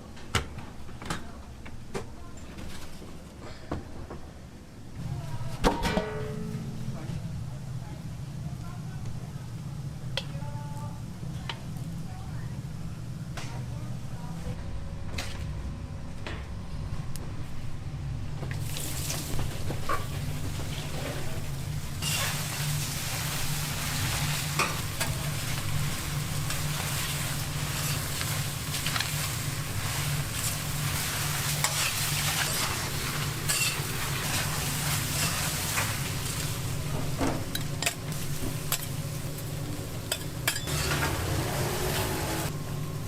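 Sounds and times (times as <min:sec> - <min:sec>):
steady low hum: 0:00.0 - 0:40.7
food sizzling on a griddle: 0:21.4 - 0:36.9
metal utensils scraping: 0:22.0 - 0:22.7, 0:31.5 - 0:35.9, 0:40.1 - 0:41.2.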